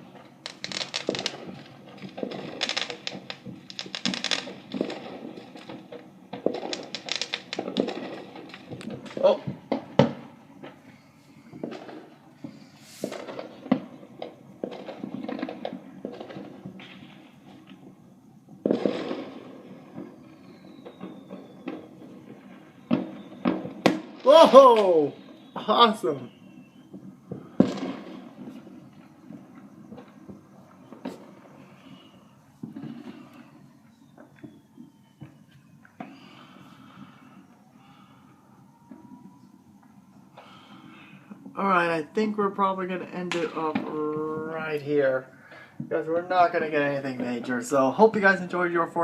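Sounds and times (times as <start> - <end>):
fireworks popping and crackling: 0.0 - 49.0
loud firework bang with rumble: 11.5 - 25.7, 26.3 - 33.3
faint falling whistle: 19.9 - 27.8, 28.5 - 41.4.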